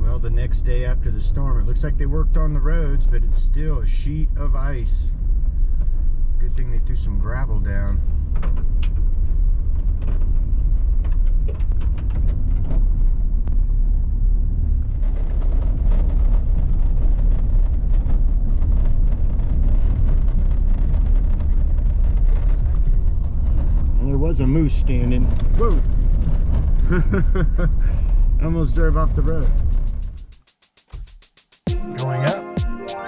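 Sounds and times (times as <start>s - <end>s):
engine and tyres rumbling: 0.0s - 30.4s
gravel clicks: 7.6s - 30.1s.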